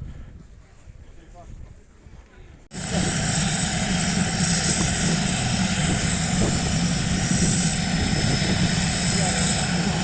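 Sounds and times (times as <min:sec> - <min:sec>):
helicopter engine and rotor: 0:02.7 - 0:10.0.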